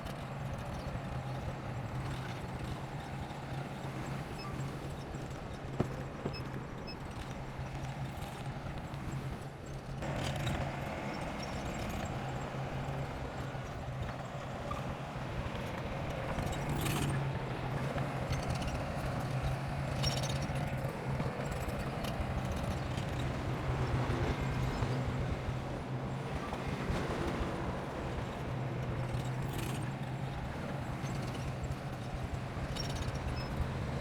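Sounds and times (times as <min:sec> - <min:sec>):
bulldozer diesel engine running: 0:10.0 - 0:34.0.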